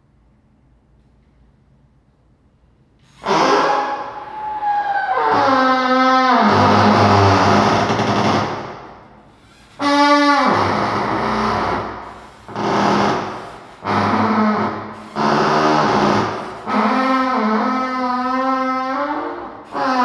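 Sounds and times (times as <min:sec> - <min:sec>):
tone sliding into noisy blare: 0:03.2 - 0:08.6.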